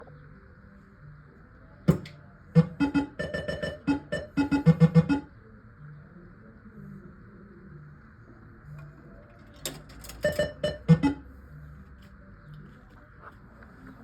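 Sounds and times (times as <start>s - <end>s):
low steady hum: 0.0s - 14.0s
pinball machine mechanical clack: 1.9s - 5.2s, 9.6s - 11.2s
pinball machine pitched notes: 2.6s - 5.3s, 10.2s - 11.2s.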